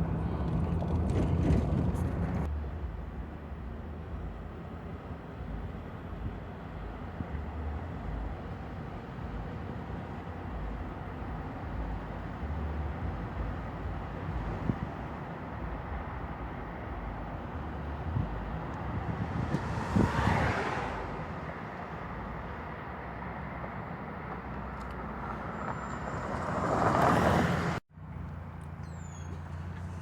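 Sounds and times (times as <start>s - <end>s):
vehicle passing close by: 0.0s - 2.5s, 17.6s - 23.6s, 24.2s - 27.8s
street traffic rumble: 0.0s - 30.0s.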